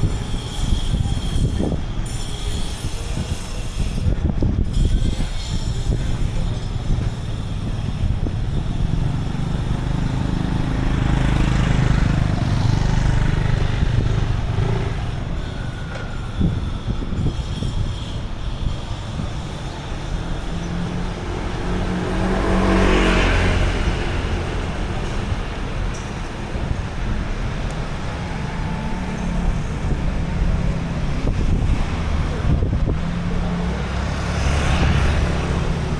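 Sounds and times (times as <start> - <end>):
street traffic passing: 0.0 - 35.9
wind rumble on microphone: 0.0 - 35.9
vehicle passing close by: 8.2 - 15.3, 20.2 - 35.9.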